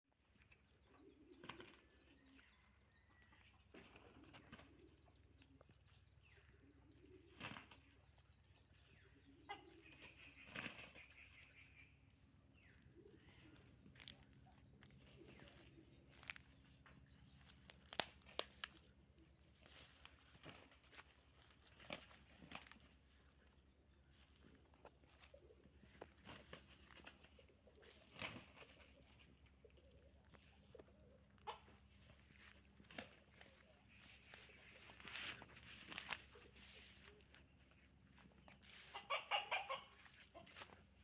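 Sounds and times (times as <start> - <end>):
wings flapping: 7.2 - 7.9, 9.9 - 11.2, 20.0 - 22.9, 26.0 - 29.2, 32.8 - 37.4.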